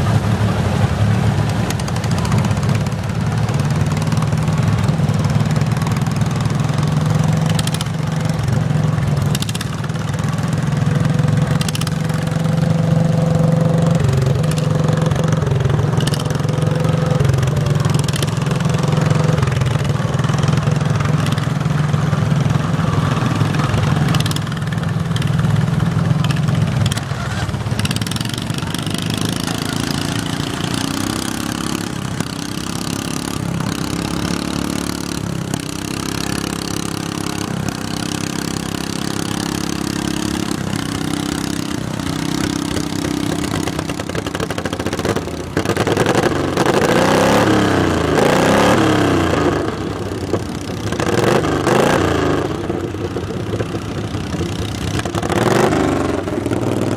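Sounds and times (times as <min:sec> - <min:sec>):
garden tractor engine running: 0:00.0 - 0:56.9
sharp clicks or knocks: 0:07.4 - 0:08.0, 0:11.5 - 0:12.1, 0:24.1 - 0:25.5.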